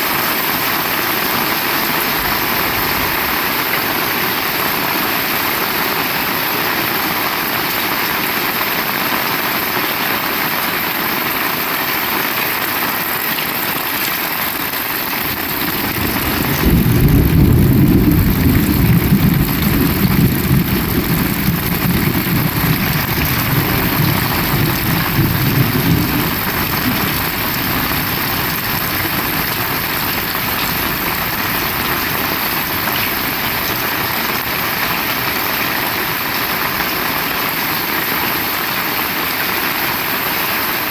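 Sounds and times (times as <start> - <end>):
heavy rain: 0.0 - 40.9
deep uneven rumble: 15.2 - 33.7.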